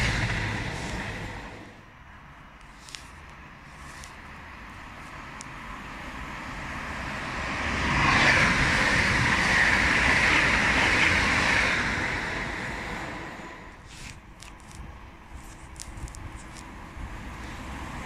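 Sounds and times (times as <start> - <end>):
train rushing past: 0.0 - 1.9, 4.6 - 13.8.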